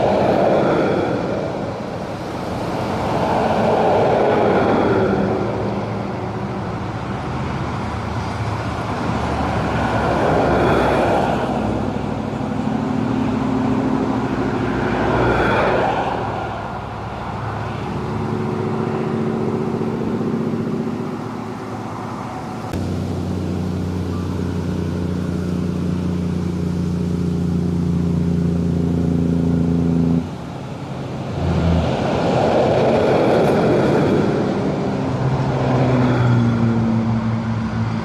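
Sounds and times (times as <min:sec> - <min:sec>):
low engine drone: 0:00.0 - 0:38.0
steady traffic engine hum: 0:00.0 - 0:38.0
vehicles passing on bridge: 0:00.0 - 0:38.0.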